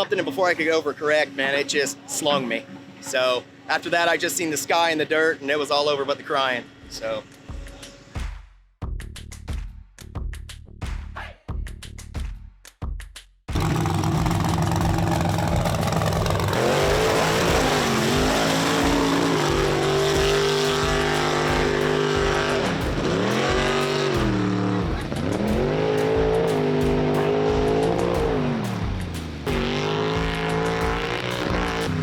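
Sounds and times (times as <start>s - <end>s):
truck engine running under load: 13.5s - 21.0s.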